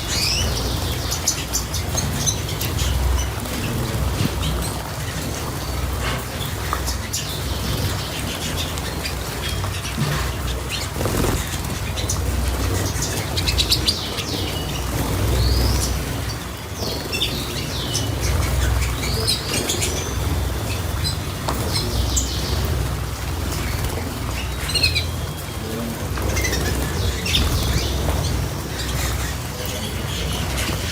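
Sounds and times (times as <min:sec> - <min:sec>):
small birds chirping: 0:00.0 - 0:30.9
wings fluttering and splashing: 0:00.0 - 0:30.9.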